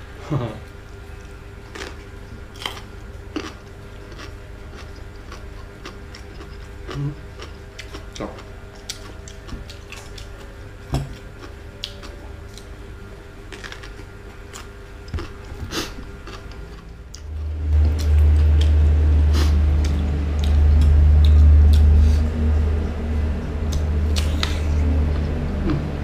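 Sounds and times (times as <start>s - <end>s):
loud steady low hum: 0.0s - 26.0s
chewing and wet mouth sounds: 0.6s - 12.7s, 13.5s - 26.0s.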